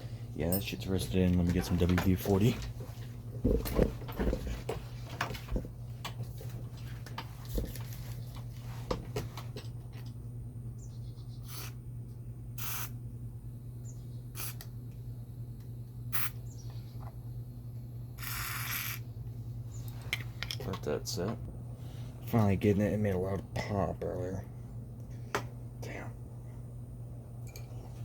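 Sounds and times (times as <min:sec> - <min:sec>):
steady low hum: 0:00.0 - 0:28.0
aerosol spray squirts: 0:12.6 - 0:13.0, 0:14.4 - 0:14.7, 0:16.1 - 0:16.4, 0:18.2 - 0:19.0.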